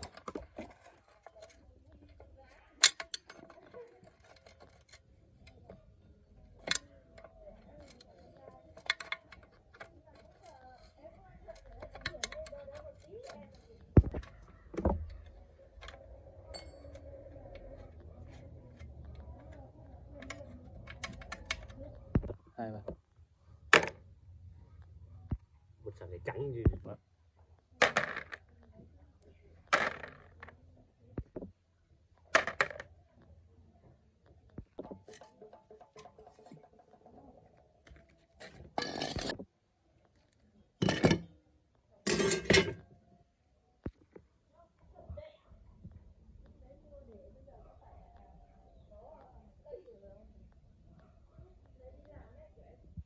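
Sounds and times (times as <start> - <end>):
faint voices: 0.0 - 23.0, 27.3 - 53.0
tools clicking: 2.8 - 5.6
metal tools clinking: 15.9 - 18.9, 38.4 - 39.4, 40.8 - 41.3, 42.1 - 42.8.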